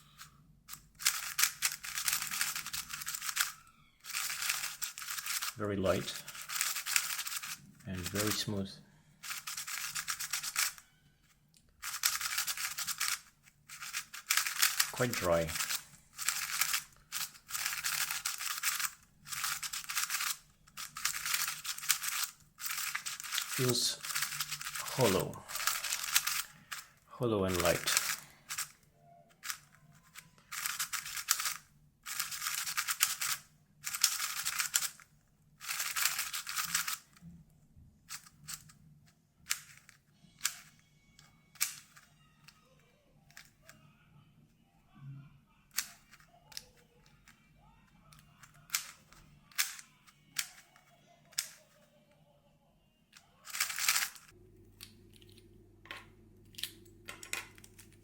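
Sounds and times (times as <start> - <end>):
speedcube clicking turns: 0.0 - 8.4, 9.2 - 10.8, 11.8 - 37.2, 38.1 - 38.8, 39.5 - 40.8, 41.5 - 42.1, 45.8 - 47.2, 48.1 - 50.6, 53.4 - 54.3.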